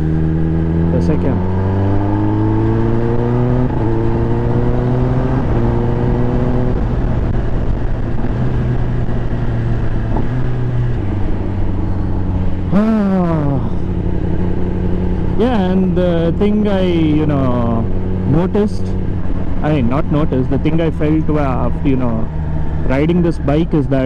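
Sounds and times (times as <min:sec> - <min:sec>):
motorcycle engine running: 0:00.0 - 0:24.0
wind noise: 0:01.6 - 0:12.8.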